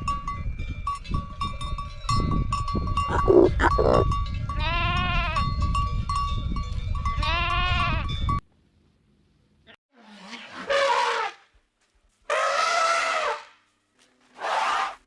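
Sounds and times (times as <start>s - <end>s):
farm animal calling: 3.1s - 4.0s.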